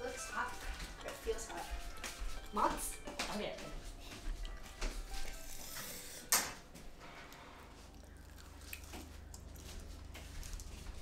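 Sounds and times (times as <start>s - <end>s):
faint chewing: 4.0s - 6.2s, 7.2s - 11.0s
crunchy bite into snack: 8.0s - 9.5s.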